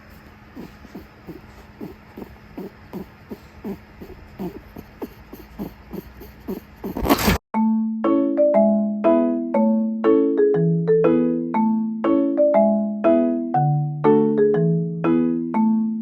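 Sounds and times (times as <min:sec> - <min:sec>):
low steady hum: 0:00.0 - 0:07.0
rabbit grunting: 0:00.0 - 0:07.4.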